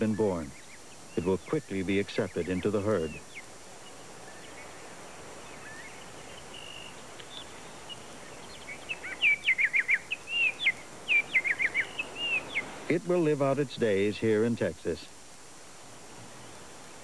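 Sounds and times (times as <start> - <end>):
songbird chirping and whistling: 0.0 - 12.8
steady background hiss: 0.0 - 17.0.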